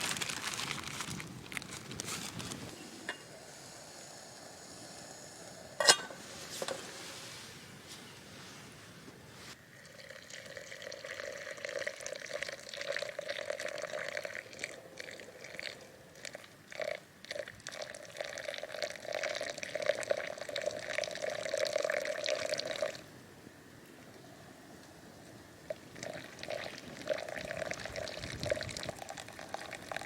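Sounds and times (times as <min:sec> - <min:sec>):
water pouring into container: 0:09.8 - 0:23.0, 0:26.0 - 0:30.0.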